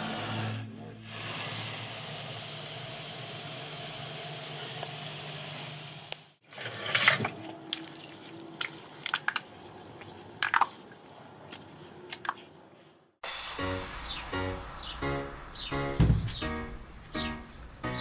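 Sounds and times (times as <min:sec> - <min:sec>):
liquid dripping and splatting: 0:07.1 - 0:12.5.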